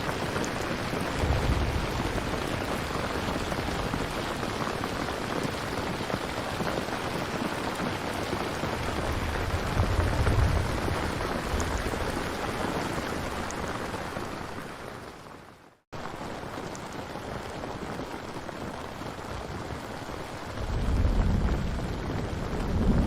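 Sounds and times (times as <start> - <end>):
steady rain: 0.0 - 23.0
low thunder rumble: 0.5 - 6.0, 8.5 - 14.2, 20.1 - 23.0.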